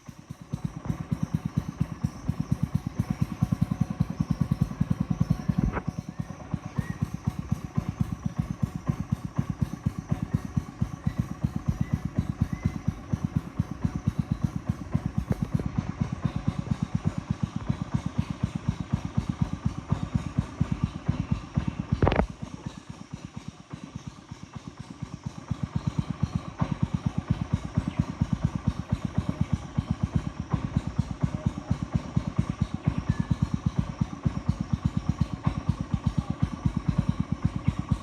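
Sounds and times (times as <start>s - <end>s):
small boat engine thudding: 0.0s - 38.0s.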